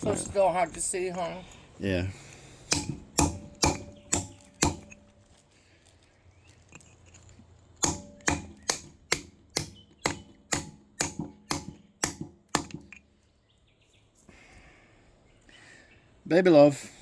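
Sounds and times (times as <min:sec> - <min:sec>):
hammer striking rock: 0:02.7 - 0:05.0, 0:07.8 - 0:13.0.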